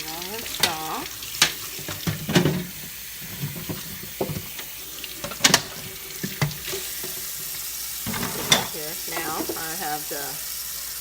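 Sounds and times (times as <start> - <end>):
tap water running and splashing: 0.0 - 11.0
plastic knocking in sink: 1.4 - 7.2.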